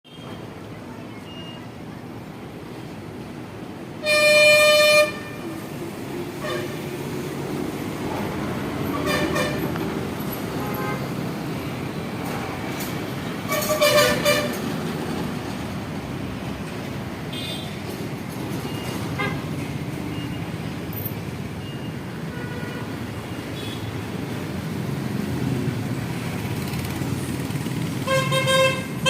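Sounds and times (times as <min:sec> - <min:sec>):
traffic noise: 0:00.0 - 0:29.0
vehicle horn: 0:04.0 - 0:05.6, 0:06.4 - 0:06.8, 0:08.9 - 0:09.7, 0:10.6 - 0:11.1, 0:13.5 - 0:14.6, 0:22.3 - 0:22.9, 0:28.0 - 0:29.0.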